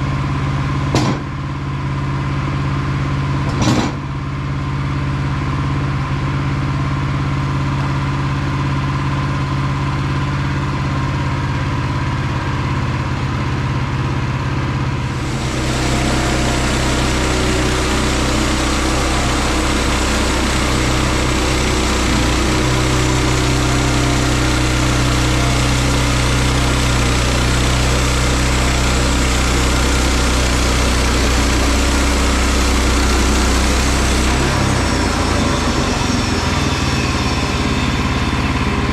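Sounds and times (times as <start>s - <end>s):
sawmill gas engine running: 0.0s - 38.9s
saw cutting hiss: 15.1s - 38.6s.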